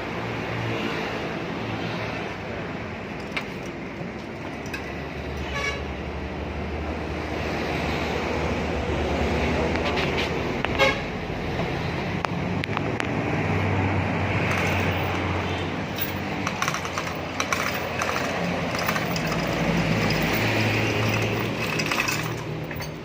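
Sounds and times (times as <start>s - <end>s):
vehicle engine humming: 8.6s - 23.0s.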